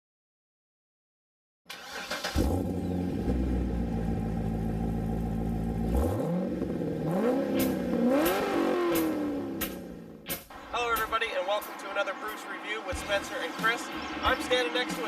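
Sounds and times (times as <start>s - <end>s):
truck engine idling and revving: 2.2s - 10.7s, 11.6s - 15.0s.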